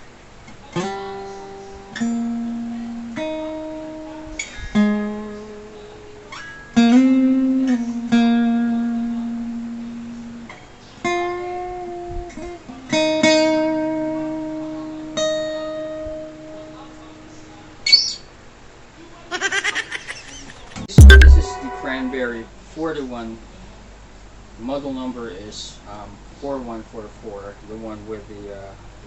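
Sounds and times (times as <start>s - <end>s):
acoustic guitar plucked slowly: 6.4s - 10.4s.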